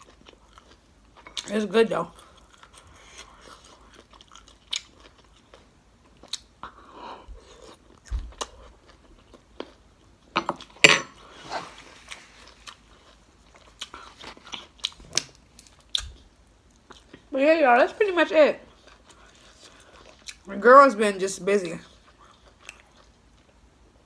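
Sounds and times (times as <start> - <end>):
person chewing broccoli: 0.0 - 1.5, 2.1 - 17.3, 18.7 - 20.5, 21.8 - 23.6.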